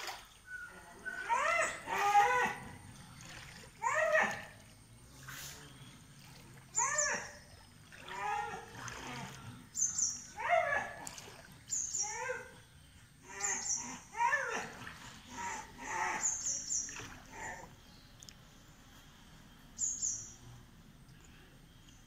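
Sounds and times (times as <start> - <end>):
water splashing: 0.0 - 12.0, 14.4 - 18.4
bird calling: 0.1 - 4.6, 6.7 - 8.7, 9.7 - 10.9, 11.7 - 18.2.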